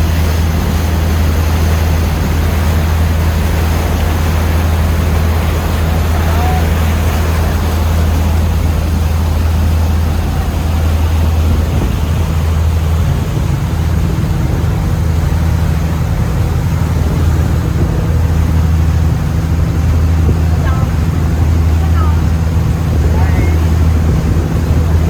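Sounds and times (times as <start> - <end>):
motorboat engine droning: 0.0 - 25.0
rushing wind: 0.0 - 25.0
water rushing: 0.0 - 25.0.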